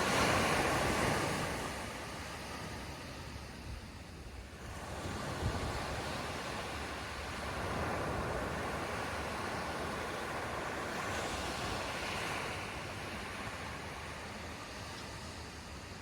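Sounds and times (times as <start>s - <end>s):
wind rumble on microphone: 2.8s - 13.9s.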